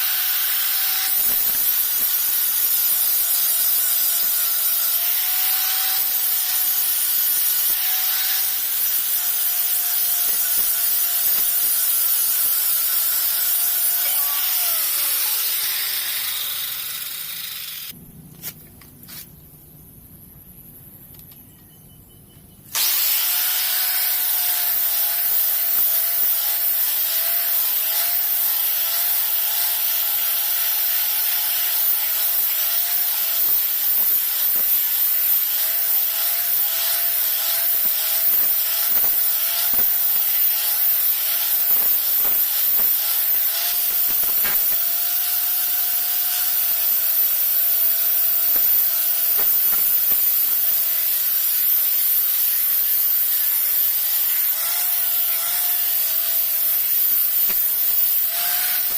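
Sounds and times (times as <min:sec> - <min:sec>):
power tool whine: 0:00.0 - 0:18.0, 0:22.7 - 0:58.9
abrasive sanding hiss: 0:27.5 - 0:58.9.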